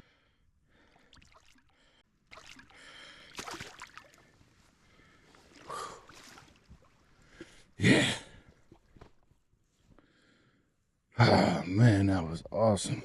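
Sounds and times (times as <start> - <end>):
river water splashing and trickling: 0.7 - 7.8.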